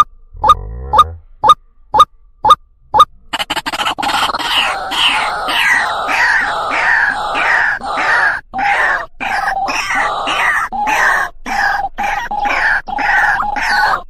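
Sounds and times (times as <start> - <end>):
waterhen harsh repeated call: 3.4 - 14.0.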